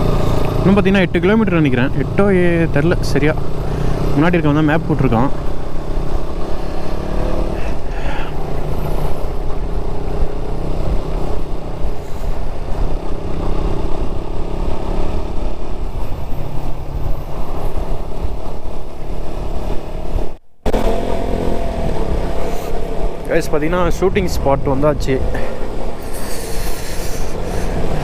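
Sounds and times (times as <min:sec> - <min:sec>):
heavy rushing noise: 0:00.0 - 0:28.0
motorcycle engine running: 0:00.0 - 0:28.0.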